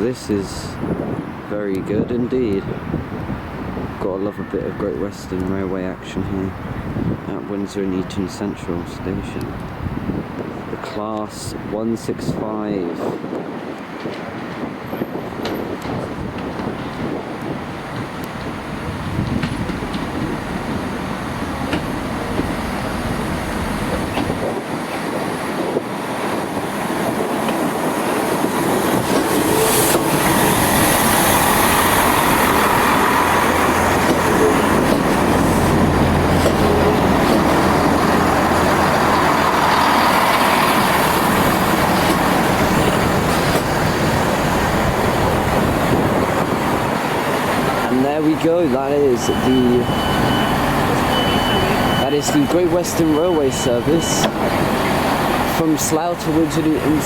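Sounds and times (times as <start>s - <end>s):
diesel train engines droning: 11.5s - 57.0s.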